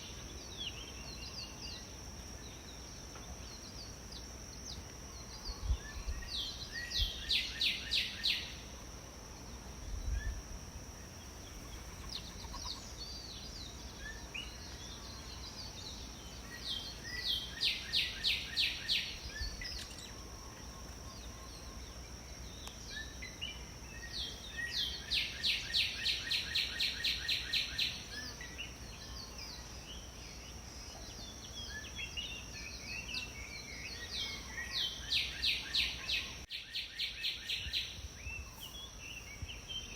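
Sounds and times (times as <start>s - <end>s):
bird song of repeated loud notes: 0.0s - 8.6s, 11.0s - 39.9s
bird chirps: 11.4s - 22.0s.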